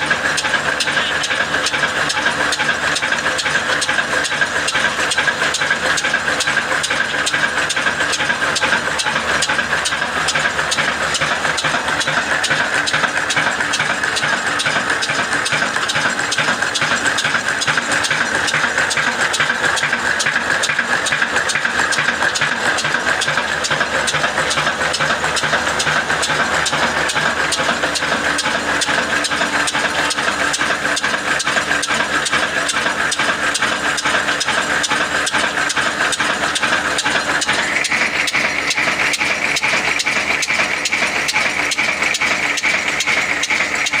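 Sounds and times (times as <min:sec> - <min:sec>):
slow diesel engine running: 0:00.0 - 0:44.0.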